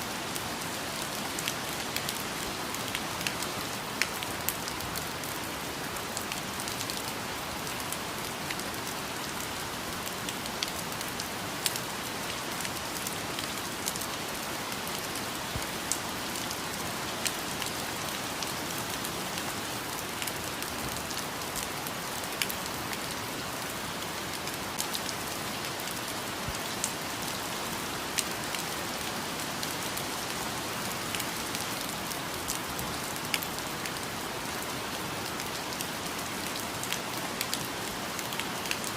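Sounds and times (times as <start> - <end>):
rain falling on foliage: 0.0 - 38.9.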